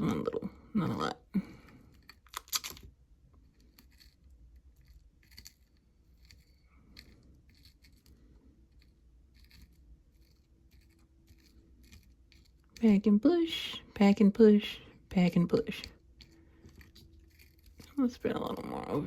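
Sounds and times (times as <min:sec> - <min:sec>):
fingers scratching kinetic sand: 0:03.8 - 0:19.0.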